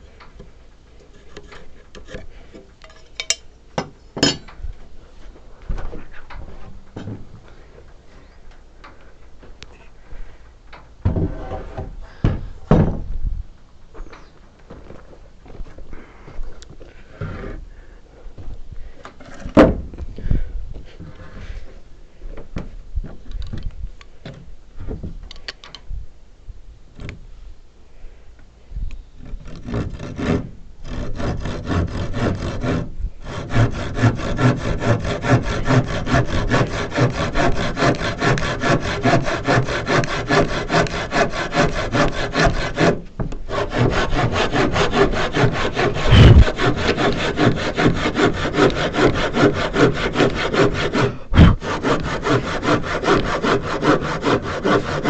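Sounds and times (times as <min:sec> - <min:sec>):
hand saw cutting wood: 0:01.0 - 0:03.3, 0:29.2 - 0:55.0
sharp thump: 0:46.1 - 0:46.6, 0:51.4 - 0:51.6.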